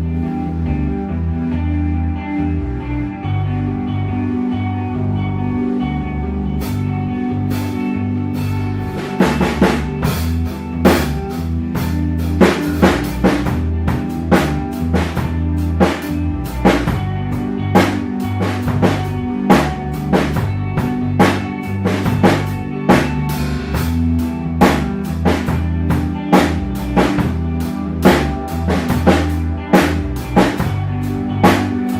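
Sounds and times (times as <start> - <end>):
ambient rock guitar and bass: 0.0 - 31.9
drum kit playing: 6.6 - 31.9.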